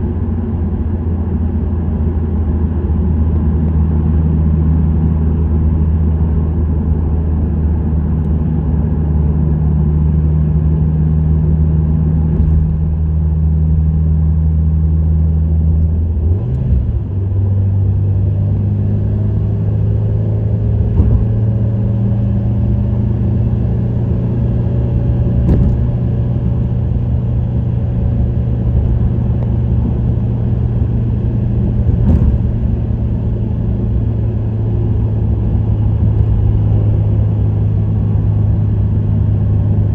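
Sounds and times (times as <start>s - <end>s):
car exhaust rumble: 0.0s - 39.9s
tyre and road noise: 11.2s - 14.5s, 15.7s - 39.9s.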